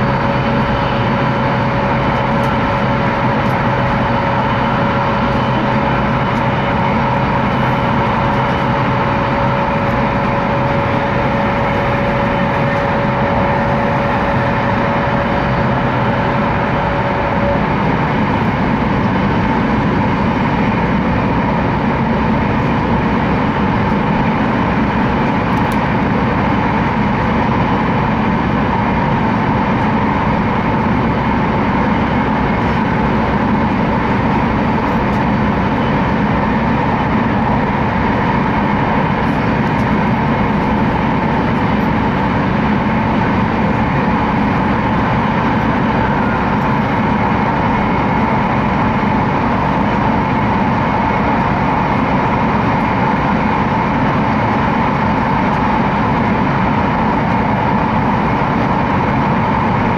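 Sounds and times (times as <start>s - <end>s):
constant tone: 0.0s - 59.9s
train cabin rushing noise: 0.0s - 59.9s.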